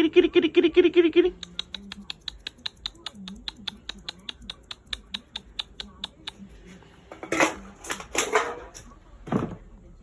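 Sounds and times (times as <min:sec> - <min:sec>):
mouth clicks calling a cat: 0:01.3 - 0:06.4.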